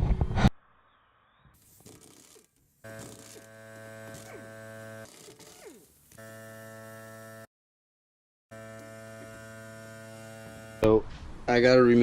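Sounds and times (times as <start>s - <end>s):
buzzy electrical hum: 1.6s - 7.5s, 8.5s - 12.0s.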